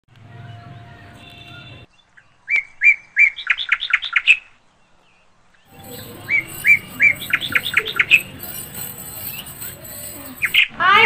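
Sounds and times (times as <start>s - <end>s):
bird chirping: 5.6s - 10.7s.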